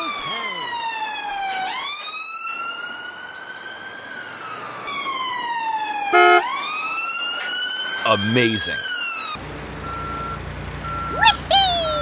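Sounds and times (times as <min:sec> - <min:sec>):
toy siren wailing: 0:00.0 - 0:02.6, 0:06.0 - 0:06.6.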